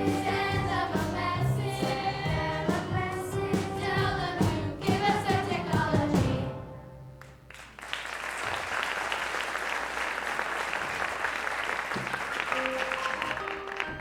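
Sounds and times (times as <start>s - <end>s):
sustained musical notes: 0.0s - 7.2s
audience applauding: 7.2s - 14.0s.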